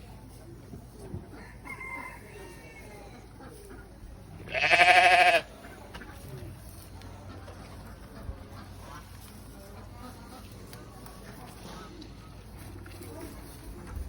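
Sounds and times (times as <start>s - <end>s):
goat or sheep bleating: 4.5s - 5.5s.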